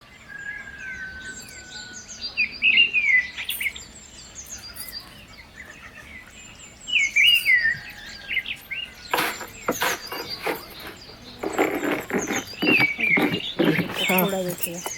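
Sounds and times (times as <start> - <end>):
birds chirping and singing: 0.1 - 14.9
rustling noise: 9.1 - 14.9.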